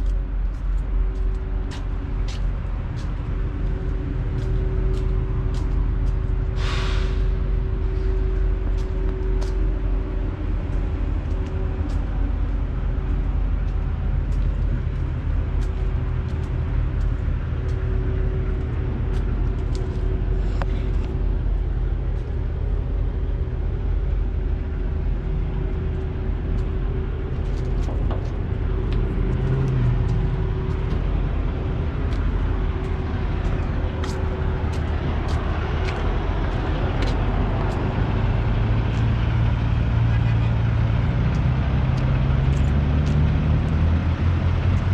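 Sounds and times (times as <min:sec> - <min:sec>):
truck engines idling: 0:00.0 - 0:44.9
light ticks: 0:32.1 - 0:37.9, 0:41.3 - 0:43.8.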